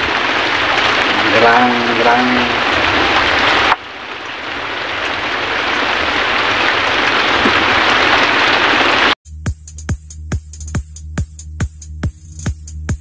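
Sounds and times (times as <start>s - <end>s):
rain falling: 0.0s - 9.2s.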